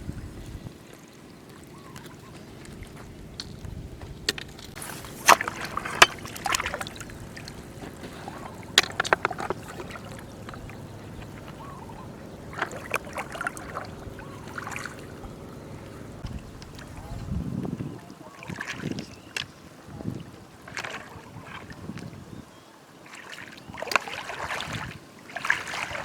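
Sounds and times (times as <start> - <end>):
steady low hum: 0.0 - 18.1
splashing in shallow water: 0.0 - 26.0.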